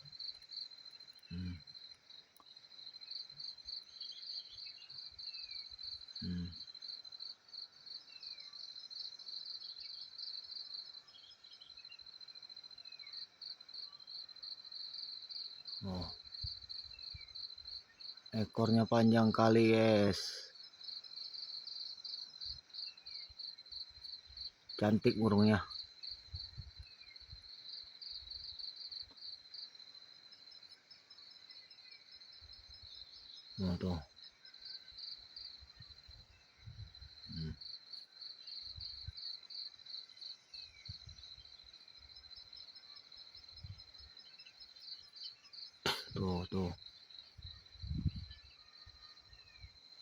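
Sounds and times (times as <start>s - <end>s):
insects chirping in a pulsing trill: 0.0s - 50.0s.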